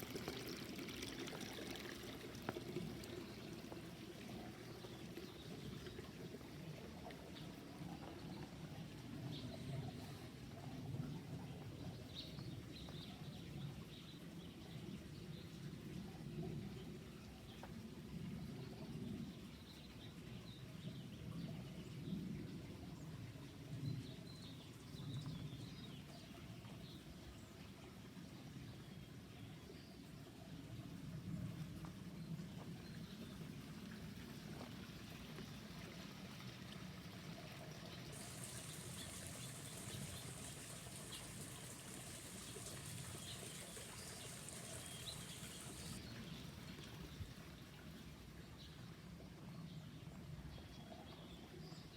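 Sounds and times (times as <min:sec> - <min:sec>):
low outdoor rumble: 0:30.6 - 0:48.4
steady high hiss: 0:38.1 - 0:46.0.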